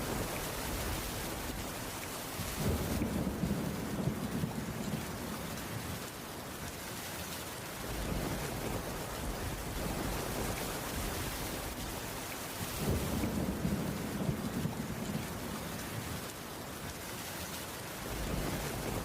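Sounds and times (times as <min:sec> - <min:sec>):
heavy rain falling: 0:00.0 - 0:19.0
low rumbles of thunder: 0:02.4 - 0:06.0, 0:07.8 - 0:16.3, 0:18.0 - 0:19.0.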